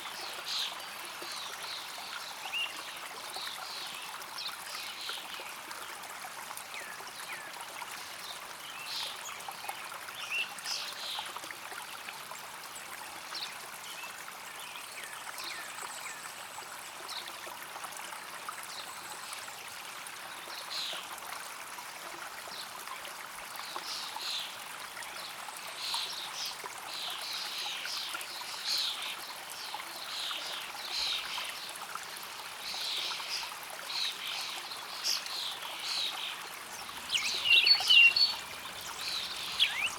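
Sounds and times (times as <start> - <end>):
stream water flowing: 0.0 - 39.9
birds chirping: 36.0 - 39.9.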